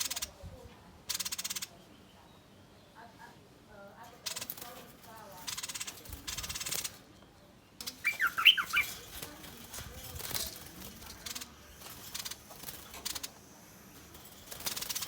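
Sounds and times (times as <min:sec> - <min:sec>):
bird rasping calls: 0:07.8 - 0:09.2
bird sharp chirps: 0:07.8 - 0:09.2.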